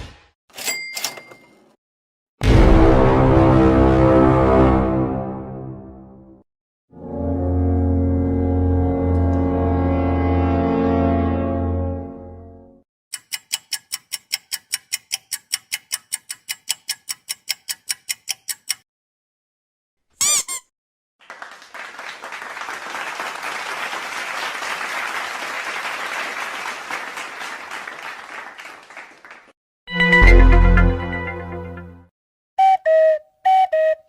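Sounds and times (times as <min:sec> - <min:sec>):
warbling high squeak: 0:20.2 - 0:20.7
crowd applause: 0:21.2 - 0:29.6.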